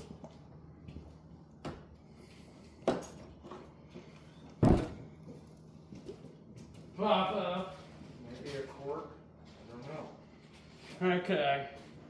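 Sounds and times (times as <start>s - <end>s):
heavy thud: 4.6s - 5.0s.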